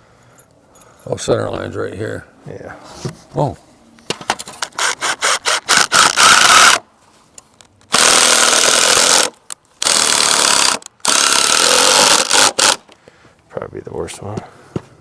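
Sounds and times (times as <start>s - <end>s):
cordless power tool running: 7.9s - 12.8s.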